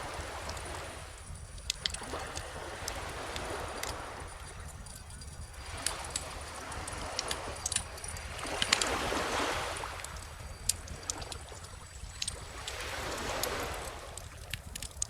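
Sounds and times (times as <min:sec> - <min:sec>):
ocean waves washing: 0:00.0 - 0:15.0
wood fire crackling: 0:00.4 - 0:03.0, 0:13.4 - 0:15.0.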